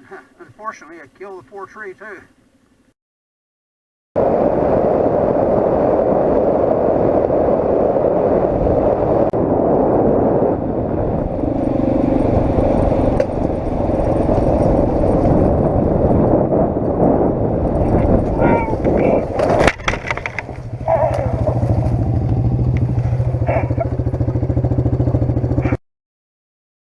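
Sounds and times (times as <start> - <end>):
riding wind noise: 4.2 - 25.8
motorcycle engine running: 10.8 - 16.3, 17.4 - 25.8.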